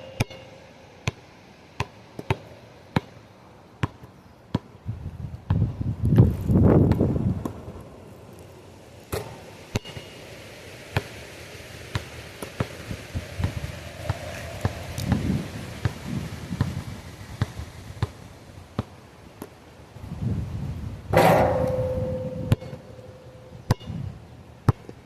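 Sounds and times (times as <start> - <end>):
low wind rumble: 4.9 - 8.0, 12.6 - 18.7, 20.0 - 24.5.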